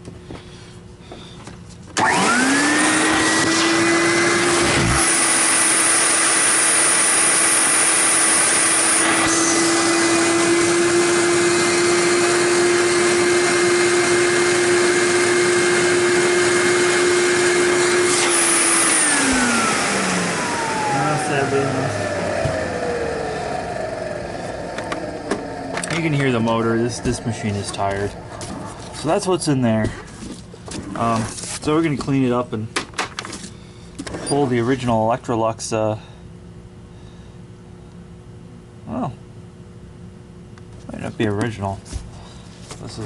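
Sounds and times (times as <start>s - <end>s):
vacuum cleaner motor whining: 2.0s - 31.2s.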